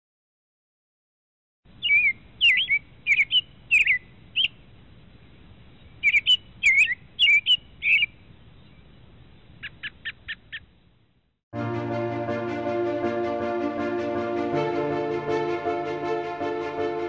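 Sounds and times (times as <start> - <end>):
songbird singing: 1.7 - 10.8
faint low background hiss: 1.7 - 11.4.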